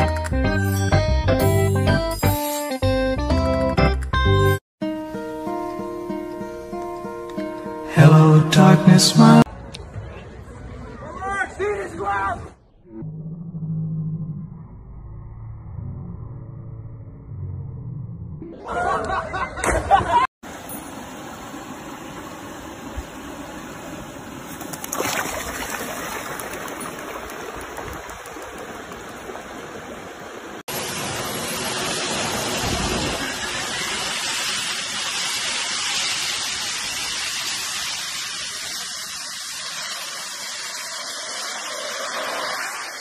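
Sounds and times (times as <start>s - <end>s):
jet engines roaring: 39.4s - 43.0s.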